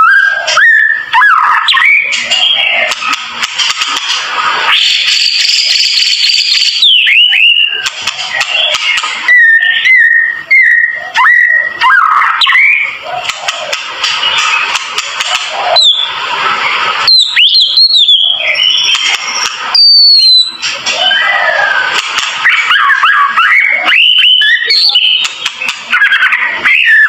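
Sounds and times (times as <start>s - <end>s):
songbird singing: 4.9s - 14.8s, 17.1s - 21.8s.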